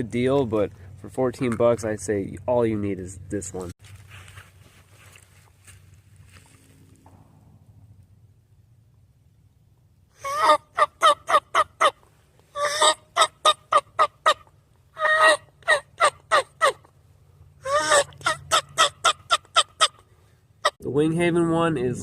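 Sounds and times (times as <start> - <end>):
turkey call yelping: 10.2 - 17.0, 17.6 - 20.8.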